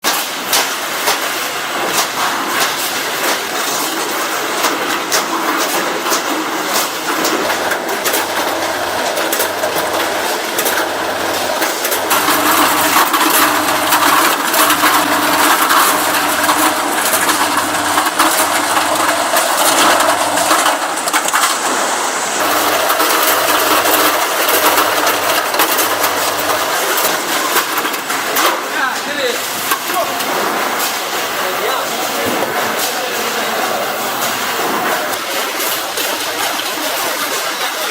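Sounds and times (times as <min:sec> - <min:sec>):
low hum switching on and off: 0:07.5 - 0:19.2.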